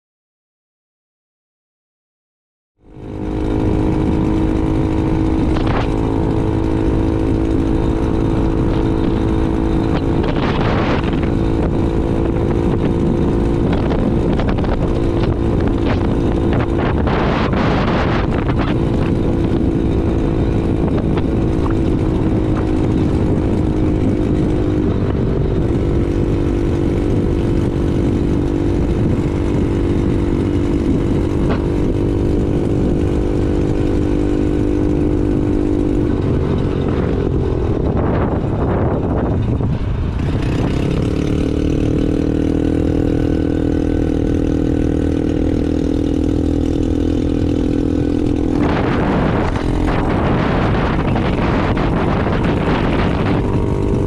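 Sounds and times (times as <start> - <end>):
small engine running: 2.9 - 54.0
wind on microphone: 3.0 - 54.0.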